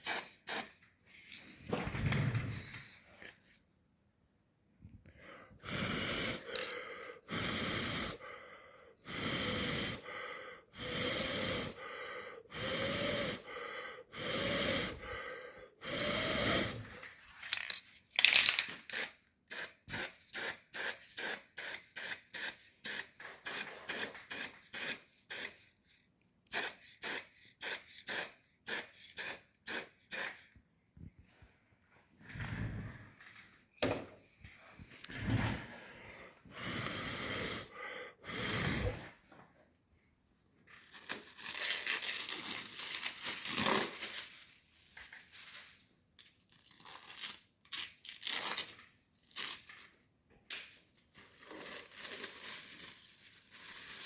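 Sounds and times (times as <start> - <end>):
spray hissing in bursts: 0.0 - 0.8, 5.6 - 6.6, 7.3 - 8.2, 9.1 - 10.1, 10.8 - 11.8, 12.5 - 13.5, 14.1 - 15.1, 19.0 - 25.6, 26.5 - 30.4, 36.6 - 39.0.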